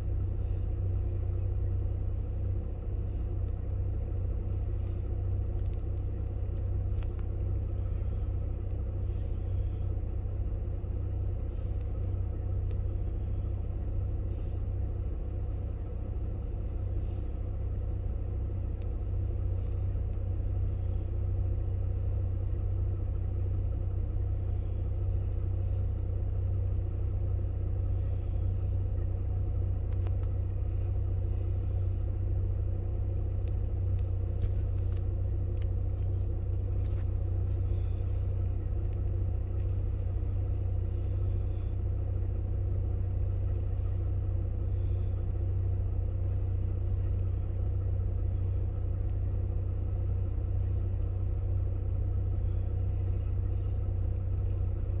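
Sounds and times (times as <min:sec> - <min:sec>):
steady low rumble: 0:00.0 - 0:55.0
faint clicks: 0:05.4 - 0:07.4, 0:11.3 - 0:12.9, 0:18.6 - 0:19.3, 0:29.8 - 0:30.4, 0:33.1 - 0:40.4.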